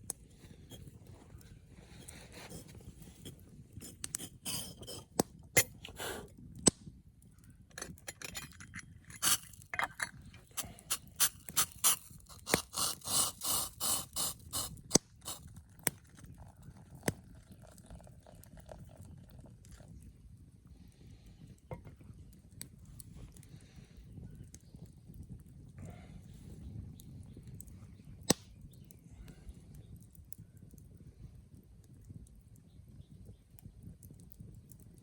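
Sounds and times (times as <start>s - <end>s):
scrapes and rustles: 0.3s - 6.3s.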